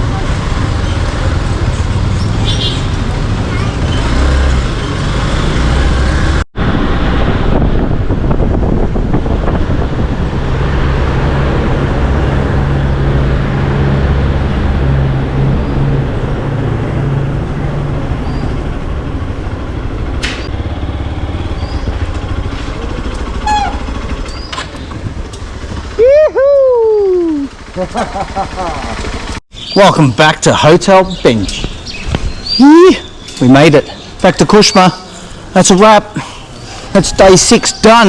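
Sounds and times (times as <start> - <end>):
wind and road noise: 0.0 - 38.0
motorcycle engine running: 18.2 - 29.4.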